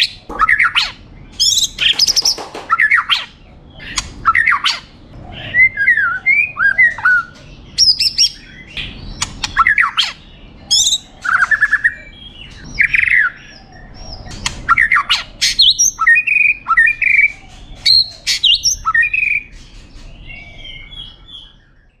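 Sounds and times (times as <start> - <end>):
bird clicks and harsh notes: 0.2 - 4.7.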